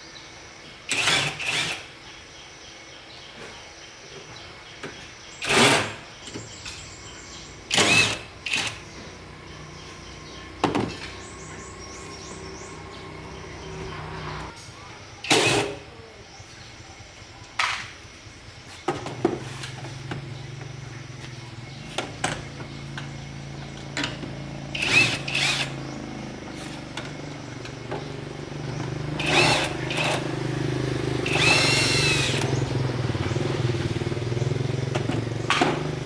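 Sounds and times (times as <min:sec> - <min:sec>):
small motor running: 0:07.0 - 0:14.5, 0:19.7 - 0:36.0.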